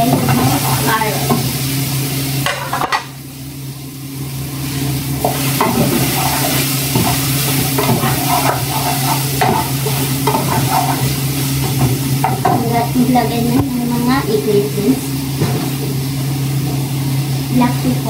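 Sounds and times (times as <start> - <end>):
vegetables sizzling in oil: 0.0 - 18.0
wooden spatula stirring and scraping: 0.1 - 1.4, 5.2 - 12.6.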